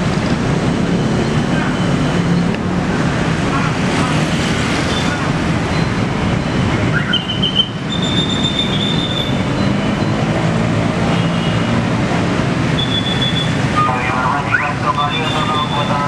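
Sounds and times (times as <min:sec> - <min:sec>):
high wheel squeals: 0:04.8 - 0:10.3, 0:12.8 - 0:13.6.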